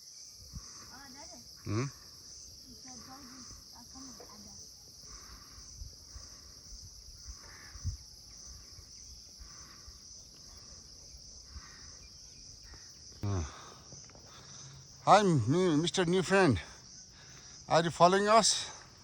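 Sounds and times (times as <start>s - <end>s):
high-pitched insect drone: 0.0s - 18.4s
soft footsteps on trail: 7.3s - 15.0s.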